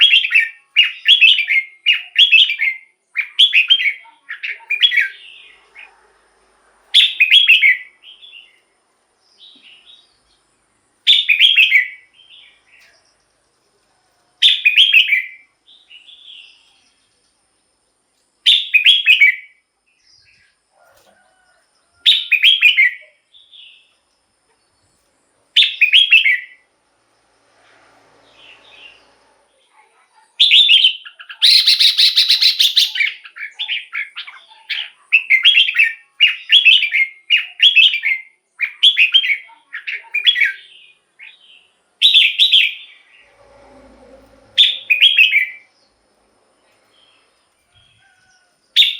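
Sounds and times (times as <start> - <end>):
bulbul singing: 30.4 - 46.0.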